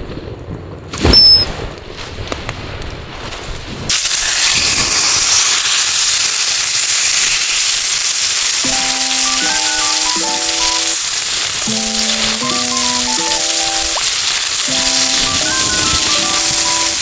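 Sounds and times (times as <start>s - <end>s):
steak sizzling in frying pan: 3.9s - 17.0s
soft music notes: 11.6s - 14.1s.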